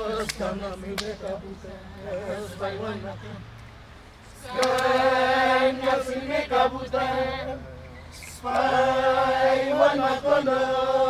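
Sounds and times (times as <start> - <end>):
group of voices chanting: 4.4 - 11.0.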